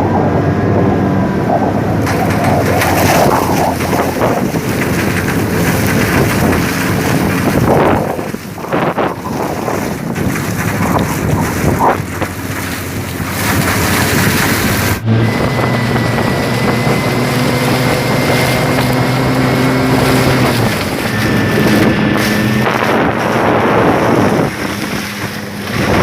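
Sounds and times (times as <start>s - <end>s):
car engine running: 0.0s - 26.0s
wind rushing over microphone: 0.0s - 26.0s.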